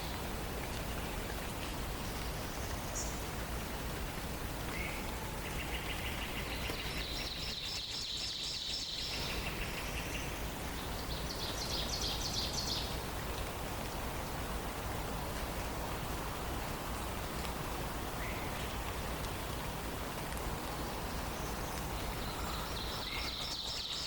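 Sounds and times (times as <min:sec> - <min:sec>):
steady rain-like hiss: 0:00.0 - 0:24.0.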